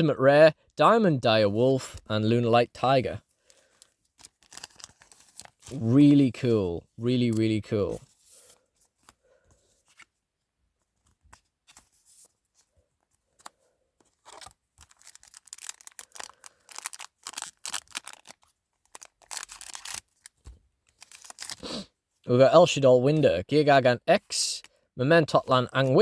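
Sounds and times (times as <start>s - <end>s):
foil wrapper tearing and crinkling: 4.2s - 5.8s, 14.3s - 21.7s.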